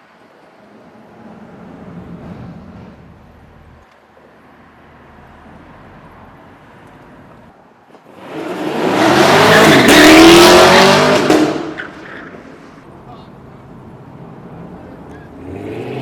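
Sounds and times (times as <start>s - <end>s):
car engine revving: 8.2s - 12.4s.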